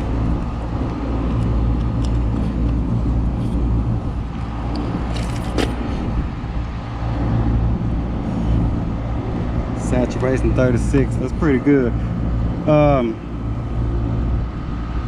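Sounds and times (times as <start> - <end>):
air conditioning unit drone: 0.0 - 15.0
light clicks and rattles: 4.7 - 5.8.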